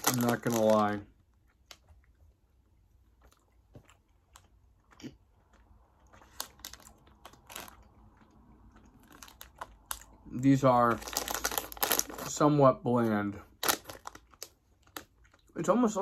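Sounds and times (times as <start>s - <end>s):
person chewing gummy candy: 3.1s - 10.3s, 13.5s - 15.6s.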